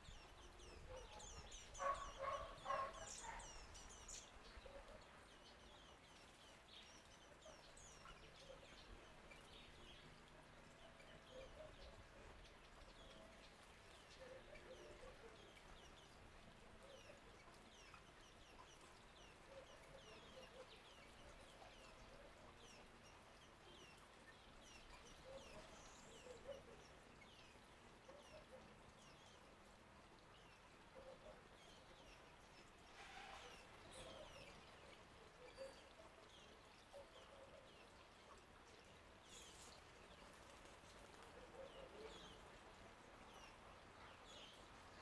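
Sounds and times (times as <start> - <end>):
birds chirping: 0.0 - 4.4.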